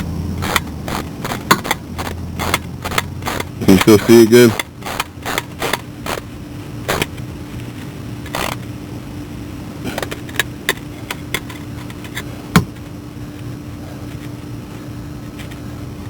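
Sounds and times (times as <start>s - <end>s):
steady low hum: 0.0s - 16.0s
tool scraping: 0.4s - 6.2s.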